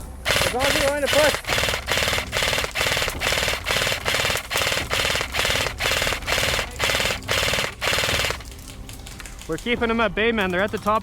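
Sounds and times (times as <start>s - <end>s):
airsoft gun firing bursts: 0.2s - 8.6s.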